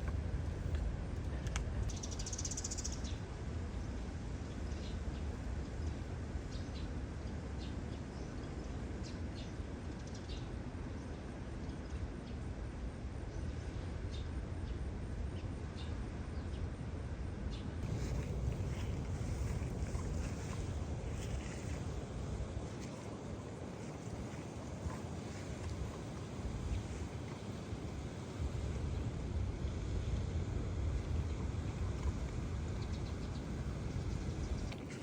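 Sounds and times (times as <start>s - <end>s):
faint chirps and ticks: 0.0s - 3.2s
wind and sea rumble: 0.0s - 35.0s.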